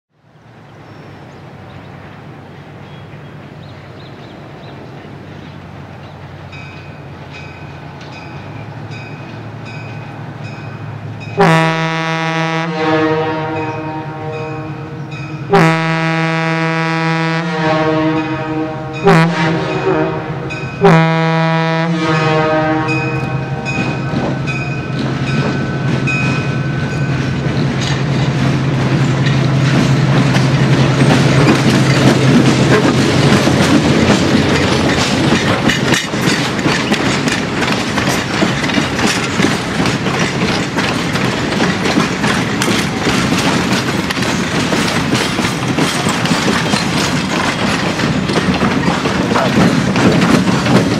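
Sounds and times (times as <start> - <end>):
locomotive engine drone: 0.2 - 50.9
coaches clattering over rail joints: 0.5 - 12.1, 22.3 - 50.9
locomotive air horn blast: 11.4 - 24.2.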